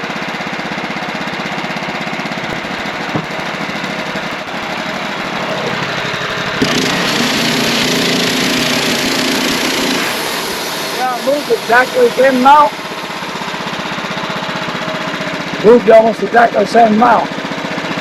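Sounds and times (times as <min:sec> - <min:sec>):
band sawmill cutting log: 0:02.5 - 0:14.8.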